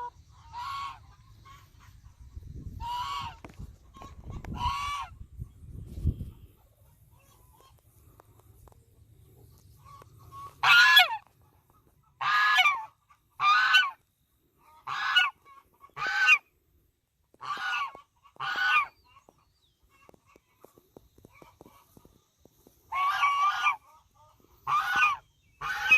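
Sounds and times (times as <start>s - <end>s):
goose honking: 0.0s - 2.0s, 2.8s - 5.2s, 9.7s - 14.0s, 14.6s - 16.5s, 17.4s - 19.3s, 22.8s - 25.9s.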